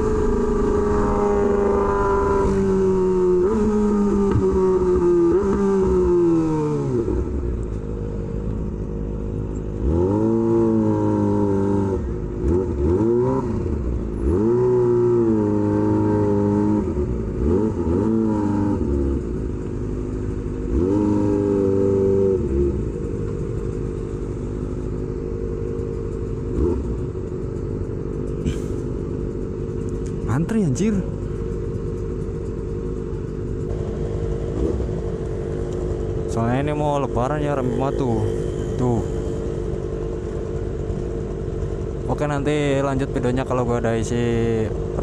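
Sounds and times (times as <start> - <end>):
motorcycle engine idling: 0.0 - 9.8, 19.0 - 45.0
motorcycle engine revving: 0.0 - 45.0.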